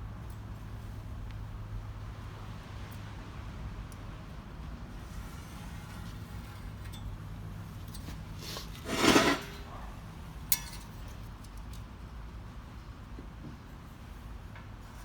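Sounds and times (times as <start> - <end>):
metal scrape: 7.9 - 9.9
sharp metallic clink: 10.5 - 11.0.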